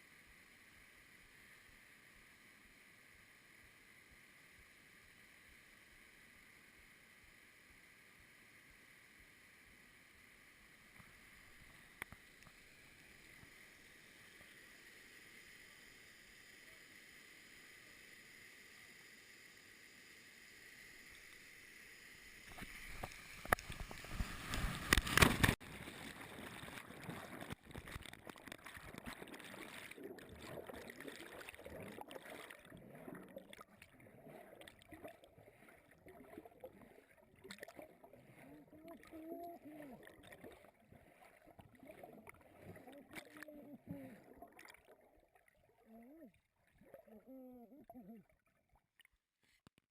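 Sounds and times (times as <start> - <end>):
splashing water: 22.5 - 46.1
rushing gurgling water: 22.6 - 45.0.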